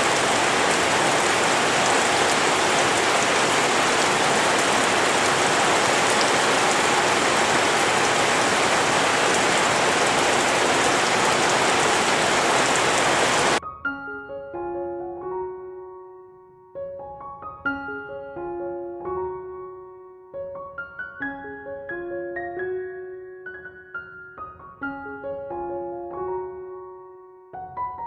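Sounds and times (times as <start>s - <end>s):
steady rain hiss: 0.0s - 13.6s.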